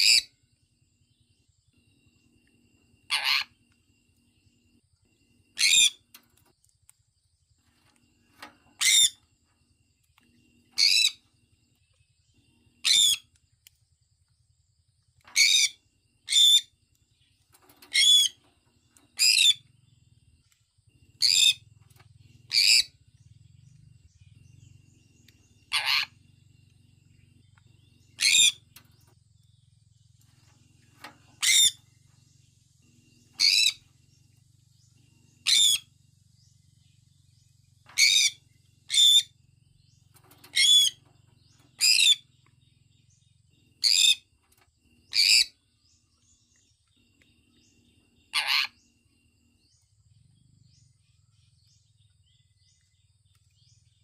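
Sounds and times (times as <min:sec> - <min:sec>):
parrot chirping: 0:00.0 - 0:00.3, 0:03.1 - 0:03.6, 0:05.6 - 0:06.0, 0:08.8 - 0:09.2, 0:10.8 - 0:11.2, 0:12.8 - 0:13.3, 0:15.4 - 0:16.7, 0:17.9 - 0:18.4, 0:19.2 - 0:19.6, 0:21.2 - 0:21.6, 0:22.5 - 0:23.0, 0:25.6 - 0:26.2, 0:28.1 - 0:28.7, 0:31.4 - 0:31.8, 0:33.4 - 0:33.9, 0:35.4 - 0:35.9, 0:38.0 - 0:39.3, 0:40.5 - 0:41.0, 0:41.8 - 0:42.2, 0:43.8 - 0:44.2, 0:45.1 - 0:45.6, 0:48.3 - 0:48.8
faint low hum: 0:00.0 - 0:54.0.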